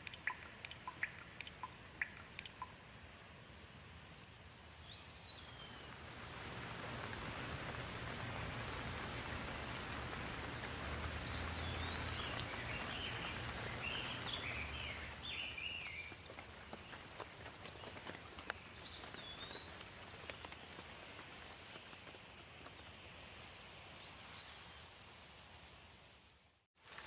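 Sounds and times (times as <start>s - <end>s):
bird chirping: 0.0s - 2.8s, 4.6s - 16.2s, 16.8s - 20.6s
sharp water drips: 0.0s - 3.0s, 4.2s - 22.2s
steady rain falling: 0.0s - 27.0s.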